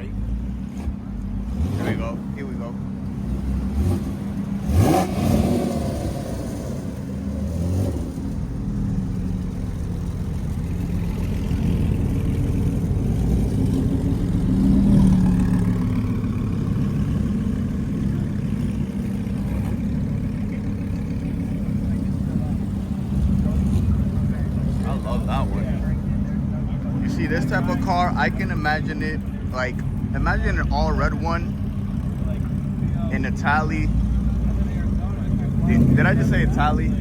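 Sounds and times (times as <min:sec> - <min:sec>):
sports car engine revving: 0:00.0 - 0:37.0.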